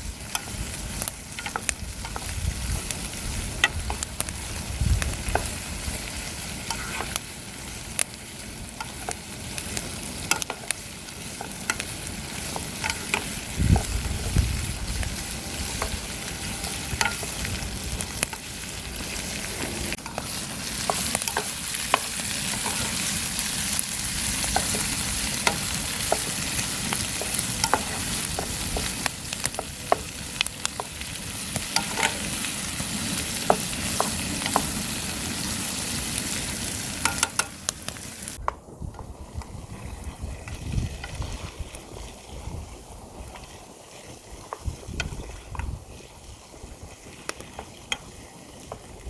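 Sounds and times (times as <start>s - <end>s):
food sizzling in a pan: 0.0s - 38.4s, 39.7s - 49.0s
utensil tapping a pan: 37.0s - 37.6s.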